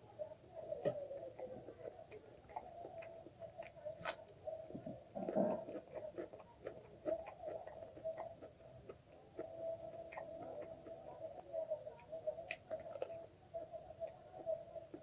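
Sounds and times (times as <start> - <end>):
wet mouth clicks from chewing: 1.4 - 4.4, 5.2 - 11.0.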